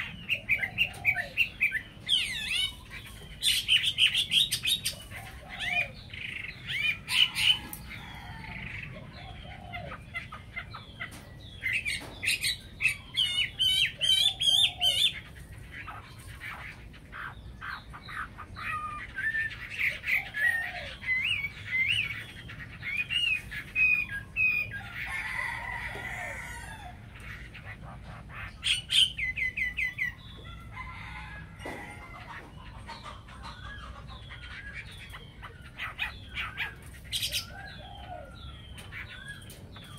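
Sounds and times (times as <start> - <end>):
songbirds whistling and trilling: 0.0 - 39.9
rooster crowing: 24.8 - 27.1, 30.4 - 32.4.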